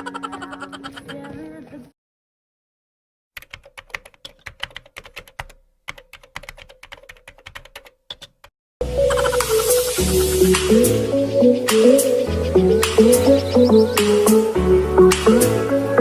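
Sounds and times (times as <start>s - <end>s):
keyboard typing clicks: 3.4s - 8.5s
loud music: 8.8s - 16.0s.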